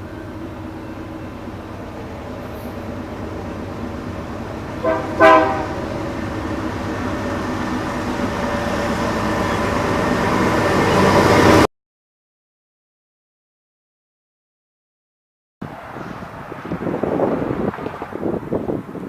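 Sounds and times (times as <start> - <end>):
freight train rumble: 0.0 - 11.7, 15.6 - 19.0
train horn blasts: 4.8 - 6.0.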